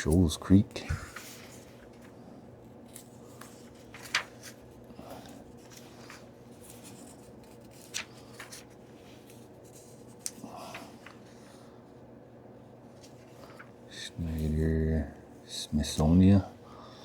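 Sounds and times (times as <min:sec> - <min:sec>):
book pages turning: 0:01.1 - 0:11.4.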